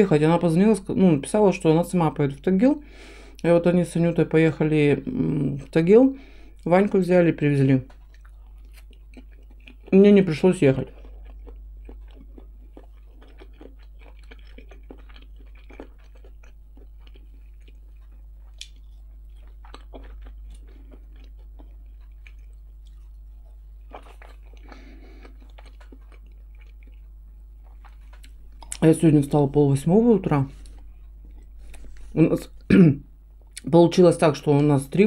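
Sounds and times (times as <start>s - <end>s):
steady low hum: 0.0s - 35.0s
chewing crunchy food: 7.7s - 32.7s.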